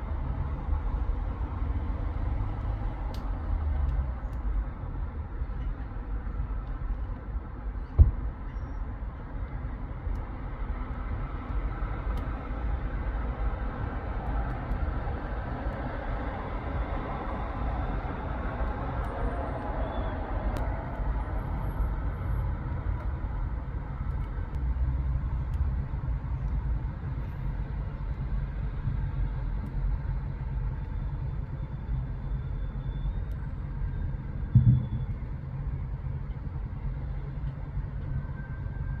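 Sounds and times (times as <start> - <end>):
road traffic rumble: 0.0 - 39.0
loud bump: 34.6 - 35.1.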